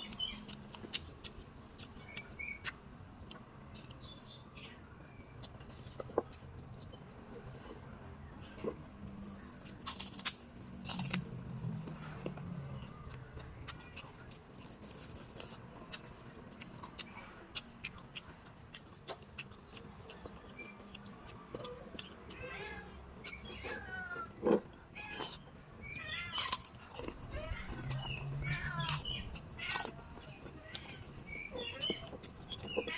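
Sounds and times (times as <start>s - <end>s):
chewing and food handling: 0.0s - 32.9s.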